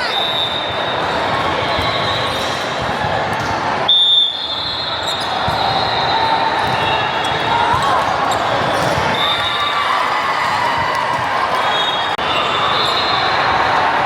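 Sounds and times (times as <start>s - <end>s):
shoe squeaks: 5.0s - 5.8s.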